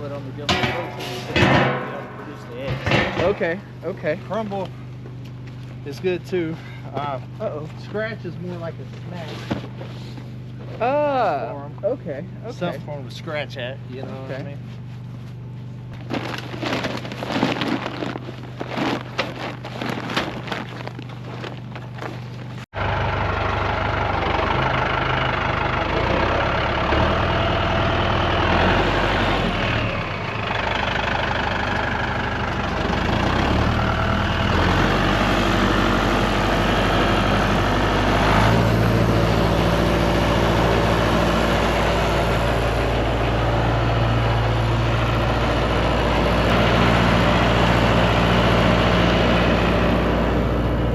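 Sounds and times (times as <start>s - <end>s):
low engine hum: 0.0s - 50.9s
vehicle engine running: 0.0s - 50.9s.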